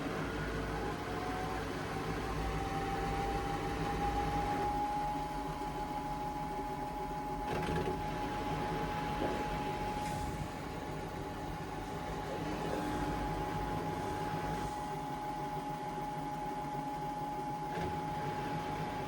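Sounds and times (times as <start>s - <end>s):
washing machine motor whine: 0.0s - 19.0s.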